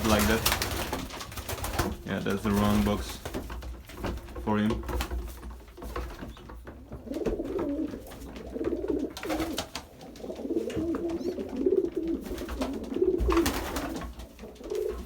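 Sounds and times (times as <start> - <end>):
pigeons cooing: 6.1 - 15.0.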